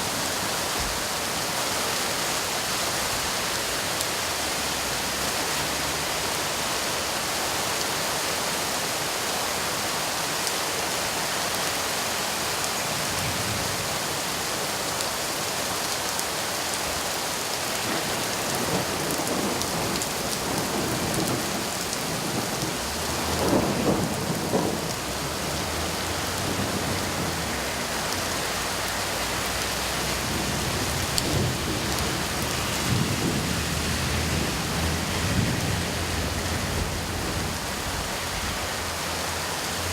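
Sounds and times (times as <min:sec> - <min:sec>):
steady rain hissing: 0:00.0 - 0:39.9
thunder rumbling: 0:17.8 - 0:28.1, 0:30.0 - 0:38.7.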